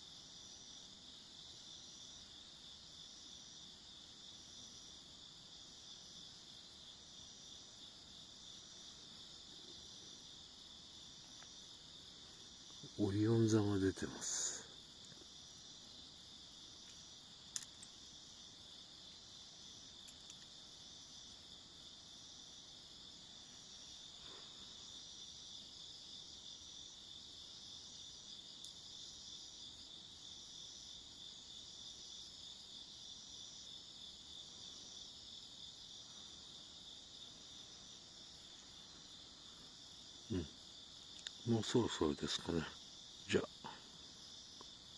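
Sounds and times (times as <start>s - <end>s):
insects trilling and chirping: 0.0s - 44.9s.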